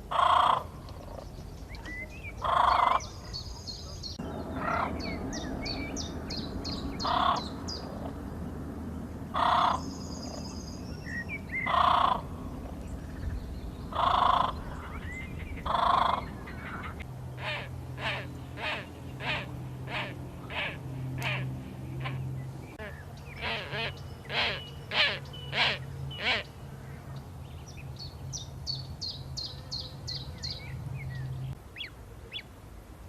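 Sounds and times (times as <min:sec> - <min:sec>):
steady low background rush: 0:00.0 - 0:31.6
small birds chirping: 0:00.0 - 0:32.5
bird cawing harshly: 0:09.4 - 0:09.8, 0:13.9 - 0:14.6.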